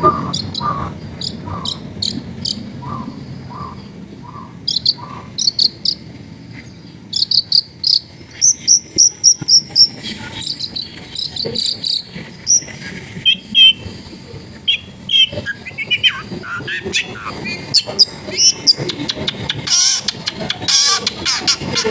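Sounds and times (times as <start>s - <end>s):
shrike singing sharp chattering notes: 14.7s - 21.9s.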